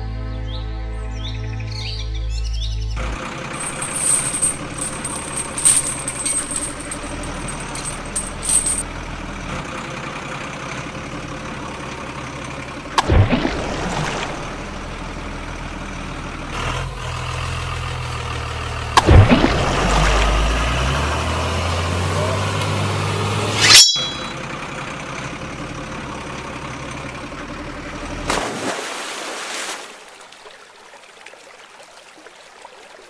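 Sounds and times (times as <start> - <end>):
truck engine running: 2.6 - 23.6, 24.2 - 28.3.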